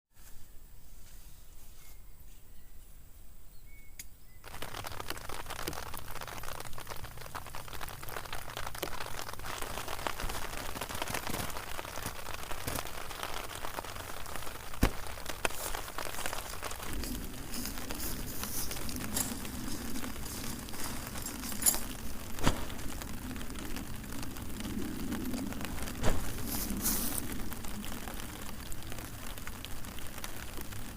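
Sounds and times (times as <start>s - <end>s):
rain pattering: 4.4s - 30.9s.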